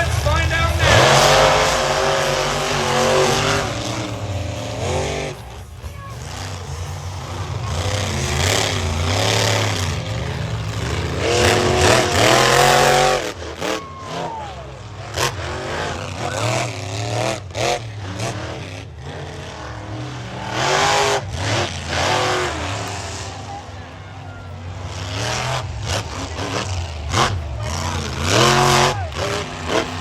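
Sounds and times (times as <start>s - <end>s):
sudden bangs: 0.0s - 13.4s
falling whine: 0.0s - 16.4s
monster truck engines revving: 0.0s - 30.0s.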